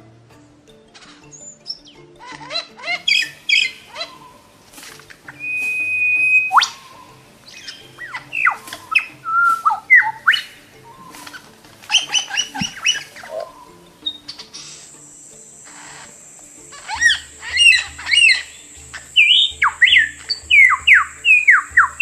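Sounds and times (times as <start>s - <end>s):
bird chirps: 1.2s - 22.0s
bird squawks: 1.4s - 22.0s
bird whistles sweeping: 5.3s - 22.0s.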